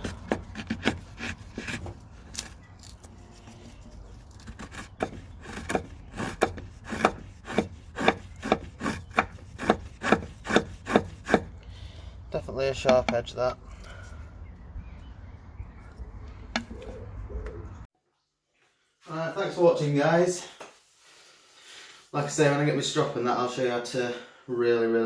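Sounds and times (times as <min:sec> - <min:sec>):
knife shaving wood: 0:00.0 - 0:11.6.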